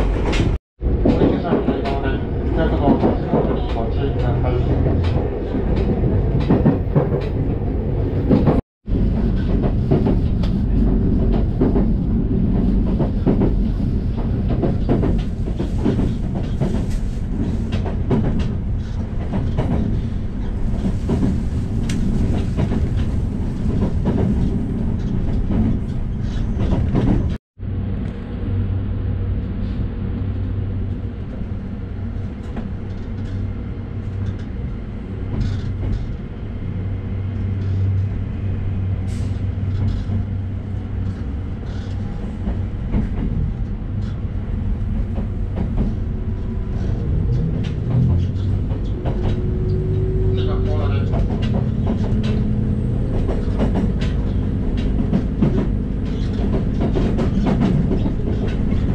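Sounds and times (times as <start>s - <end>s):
railcar engine rumble: 0.0s - 58.9s
wheels clattering over rail joints: 46.7s - 58.9s.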